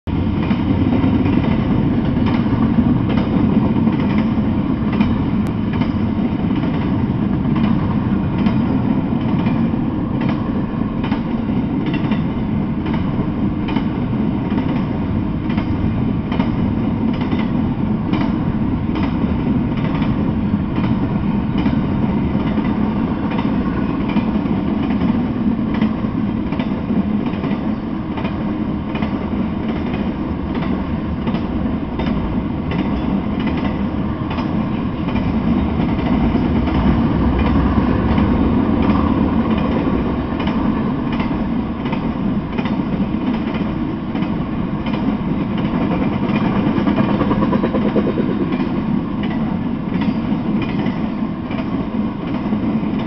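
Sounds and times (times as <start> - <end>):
freight train wheels rumbling: 0.0 - 53.0
wheels clacking over rail joints: 0.3 - 53.0.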